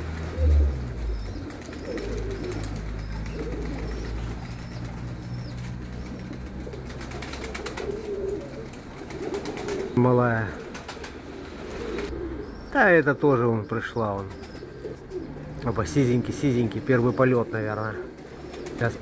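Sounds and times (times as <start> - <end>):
pigeons cooing: 0.0 - 19.0
small bird chirping: 0.7 - 7.6, 12.0 - 17.3.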